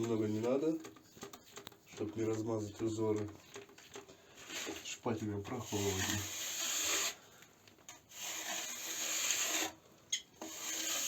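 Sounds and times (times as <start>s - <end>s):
spatula scraping plaster: 4.4s - 7.3s, 8.0s - 9.8s, 10.4s - 11.0s.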